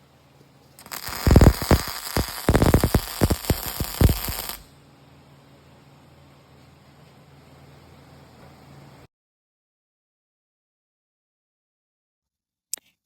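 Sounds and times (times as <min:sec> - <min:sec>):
welding arc crackling: 0:00.8 - 0:04.7.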